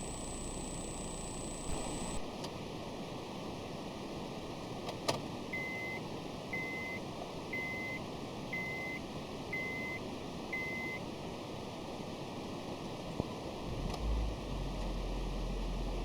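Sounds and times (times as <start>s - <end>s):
car warning chime beeping: 0.0s - 2.2s.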